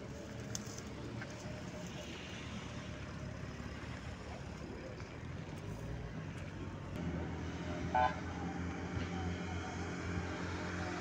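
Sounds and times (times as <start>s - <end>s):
outdoor road noise: 0.0s - 11.0s
vehicle engine running: 0.0s - 11.0s.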